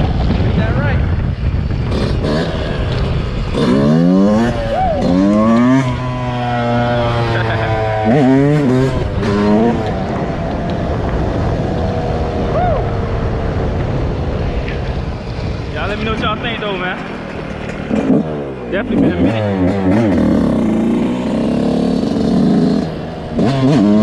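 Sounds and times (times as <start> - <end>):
dirt bike engine revving: 1.6 - 13.2, 14.9 - 24.0.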